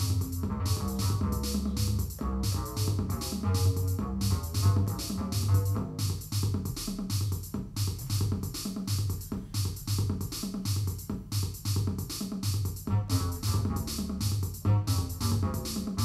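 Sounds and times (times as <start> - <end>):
synth bass line: 0.0 - 6.1, 12.9 - 16.0
drum machine beat: 0.0 - 16.0.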